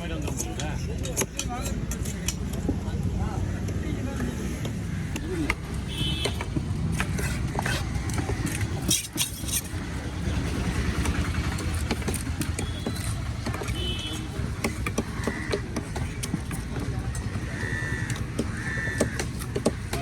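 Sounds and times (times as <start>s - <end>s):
sharp knocks and clicks: 4.6s - 20.0s.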